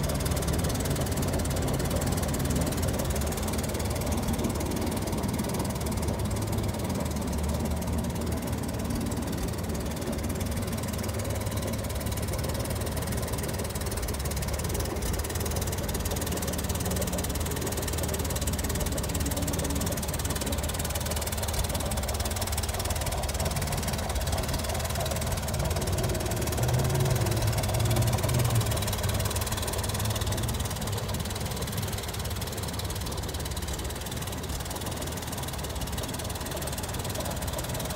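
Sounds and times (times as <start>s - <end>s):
van engine running: 0.0s - 37.9s.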